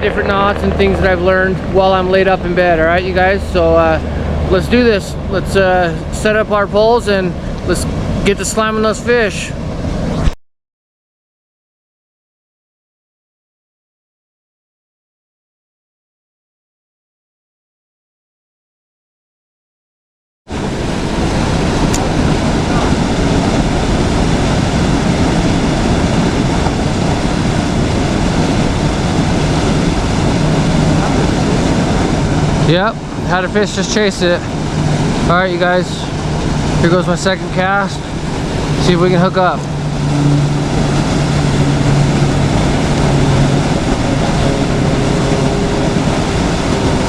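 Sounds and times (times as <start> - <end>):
river water rushing: 0.0 - 10.3, 20.5 - 47.0.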